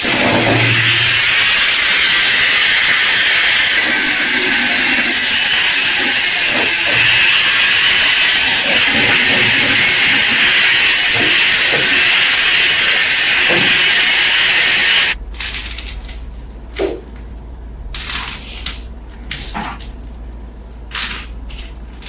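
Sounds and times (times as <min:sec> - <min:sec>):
pressurised spray hissing: 0:00.0 - 0:05.1.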